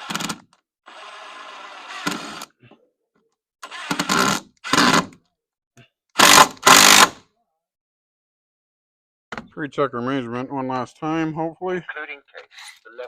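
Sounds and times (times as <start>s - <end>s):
power drill driving screw: 0.0s - 2.6s, 3.6s - 5.2s, 6.2s - 7.2s.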